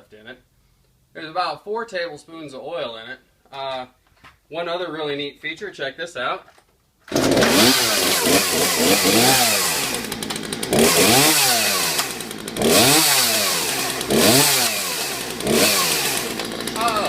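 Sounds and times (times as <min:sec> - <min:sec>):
chainsaw engine revving: 0:07.1 - 0:17.0.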